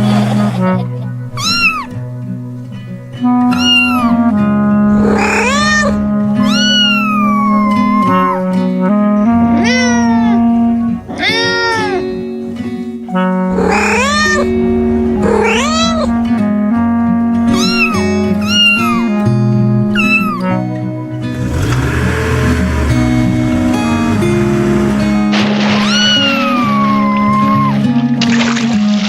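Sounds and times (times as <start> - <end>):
background music with sustained notes: 0.0 - 29.0
cat meowing: 1.4 - 1.9, 3.5 - 4.3, 5.0 - 8.5, 9.5 - 12.2, 13.5 - 14.6, 15.2 - 16.2, 17.5 - 19.2, 20.0 - 20.5, 25.8 - 27.9.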